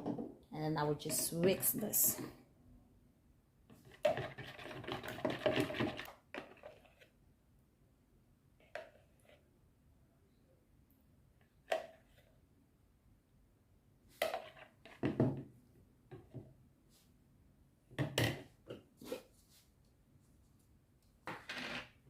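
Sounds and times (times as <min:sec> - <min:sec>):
utensil scraping and clinking bowl: 0:01.0 - 0:02.1, 0:03.8 - 0:07.1.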